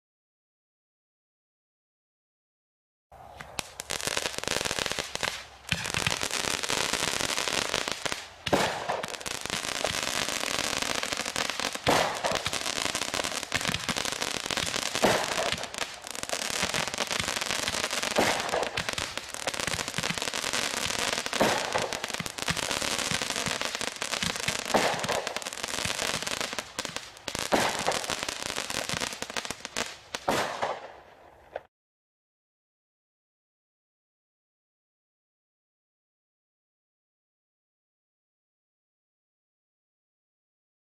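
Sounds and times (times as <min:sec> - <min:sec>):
fireworks firing and crackling: 0:03.4 - 0:31.7.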